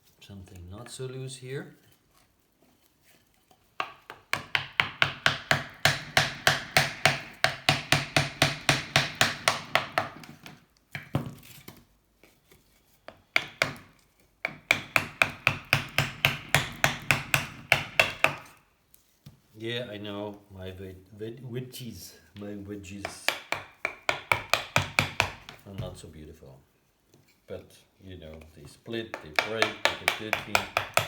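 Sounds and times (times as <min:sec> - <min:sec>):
hammer tapping wooden wedges: 0:03.8 - 0:11.3, 0:13.0 - 0:18.6, 0:22.4 - 0:26.0, 0:28.2 - 0:31.0.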